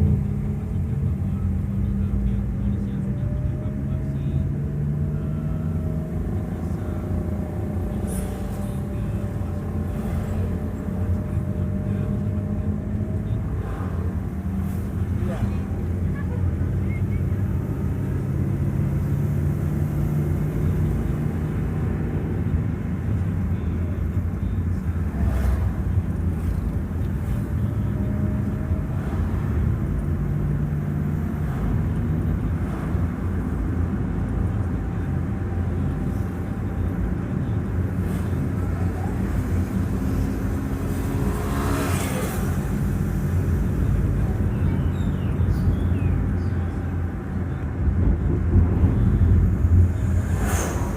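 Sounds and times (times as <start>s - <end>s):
road noise: 0.0s - 50.9s
vehicle engine drone: 0.0s - 50.9s
vehicle passing by: 3.7s - 16.0s, 24.8s - 50.9s.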